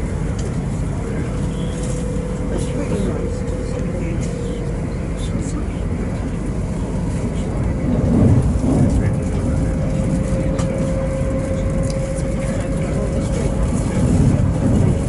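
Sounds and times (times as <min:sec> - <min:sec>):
train rumbling: 0:00.0 - 0:15.0
mid-pitched whine: 0:09.0 - 0:15.0.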